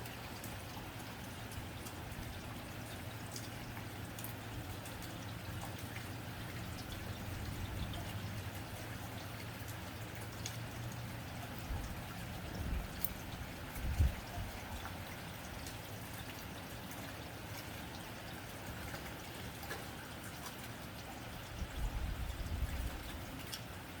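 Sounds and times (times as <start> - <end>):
rain on a tin roof: 0.0 - 24.0.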